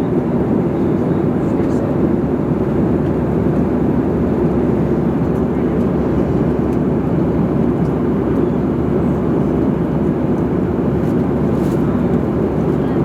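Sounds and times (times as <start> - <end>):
airliner cabin engine noise: 0.0 - 13.0.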